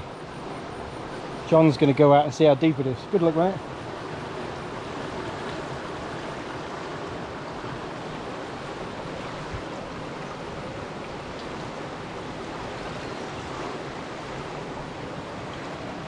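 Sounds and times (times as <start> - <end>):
river rushing: 0.0 - 16.0.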